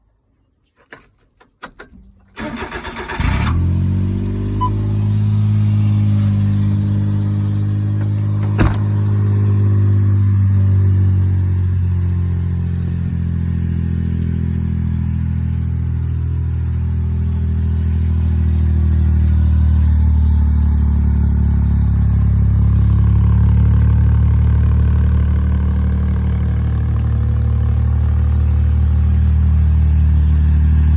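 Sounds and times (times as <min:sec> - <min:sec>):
small engine idling: 0:02.4 - 0:30.9.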